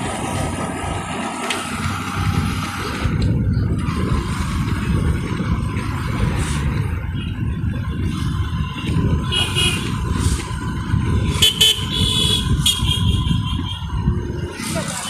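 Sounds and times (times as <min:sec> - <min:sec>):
wind and road noise rumble: 0:00.0 - 0:15.0
vehicle horns tooting: 0:09.2 - 0:10.2, 0:11.2 - 0:14.0.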